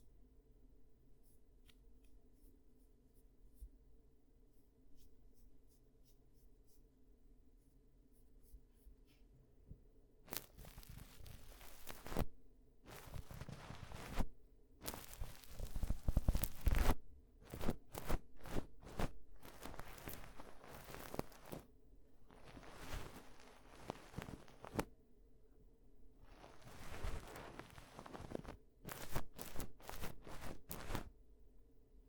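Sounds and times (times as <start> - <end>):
scratching at microphone: 10.3 - 12.3, 12.9 - 24.9, 26.2 - 31.1.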